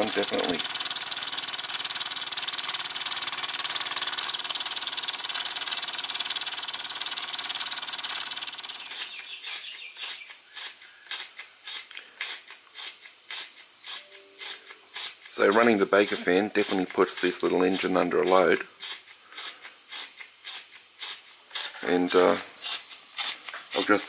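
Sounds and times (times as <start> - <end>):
toy steam engine chuffing: 0.0 - 24.0
steam hiss: 7.1 - 24.0.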